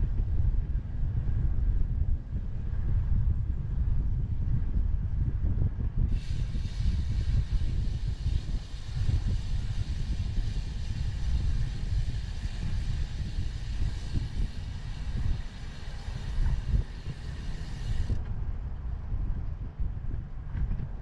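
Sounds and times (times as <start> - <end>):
wind buffeting microphone: 0.0 - 21.0
steady hiss: 6.1 - 18.2.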